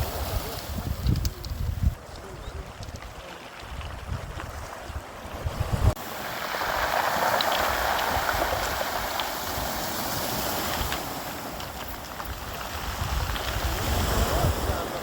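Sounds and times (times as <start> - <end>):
wind buffeting microphone: 0.0 - 15.0
sea surf washing onto beach: 3.2 - 15.0.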